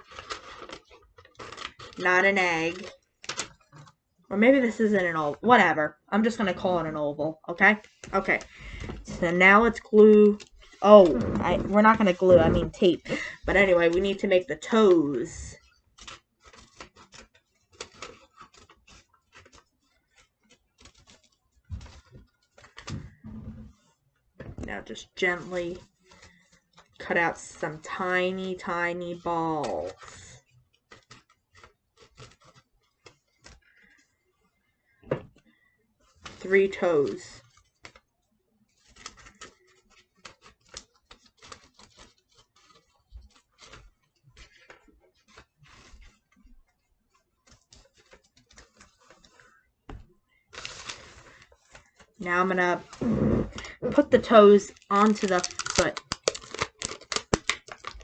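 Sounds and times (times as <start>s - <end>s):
paper crinkling: 0.0s - 4.7s, 7.6s - 34.5s, 35.3s - 58.0s.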